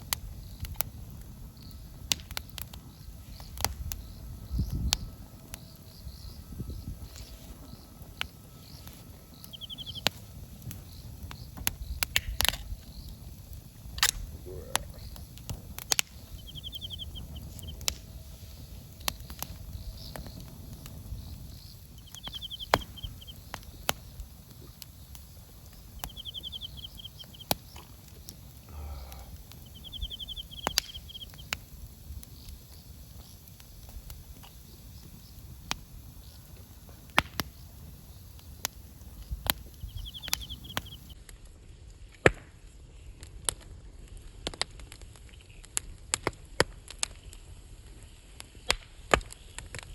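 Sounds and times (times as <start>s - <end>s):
burning wood popping: 0.0s - 41.2s
campfire crackling: 0.0s - 41.2s
bird trilling: 8.6s - 11.5s, 14.3s - 33.8s, 37.4s - 41.2s.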